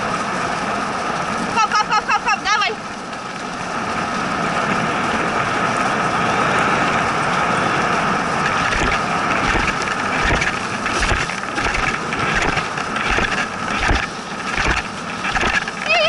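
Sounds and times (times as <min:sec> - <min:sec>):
sled runners hissing on snow: 0:06.6 - 0:16.0
sled knocking and rattling: 0:08.4 - 0:16.0.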